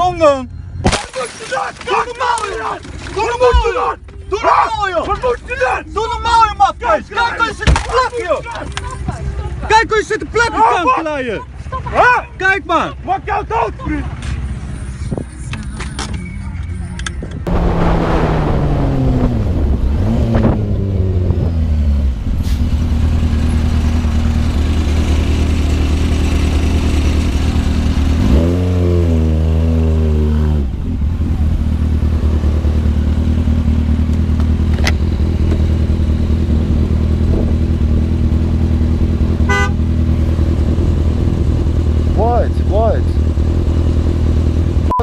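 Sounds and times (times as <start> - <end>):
motorcycle engine: 17.4 - 45.0.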